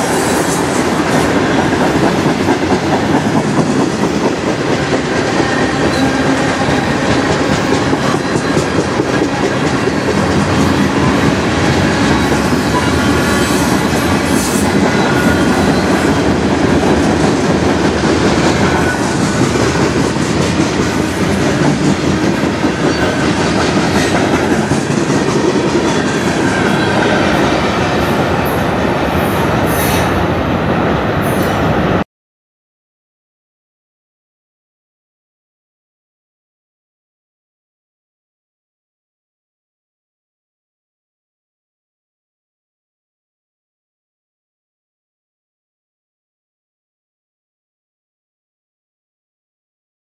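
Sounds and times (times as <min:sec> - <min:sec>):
train wheels on rails: 0:00.0 - 0:32.0.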